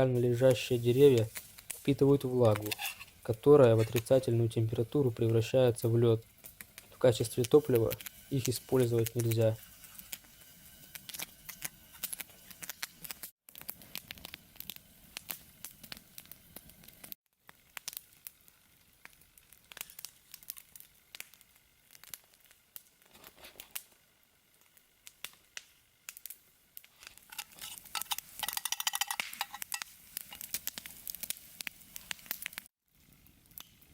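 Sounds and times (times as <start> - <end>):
campfire crackling and popping: 0.0 - 33.9
dense sizzling: 0.0 - 33.9.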